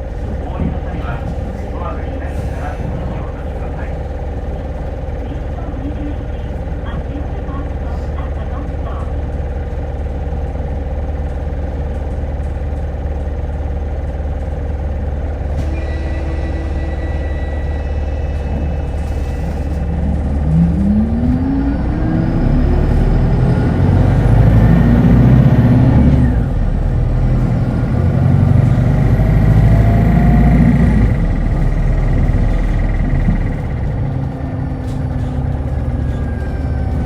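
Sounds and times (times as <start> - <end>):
bus engine: 0.0 - 37.0
rising whine: 15.7 - 34.0.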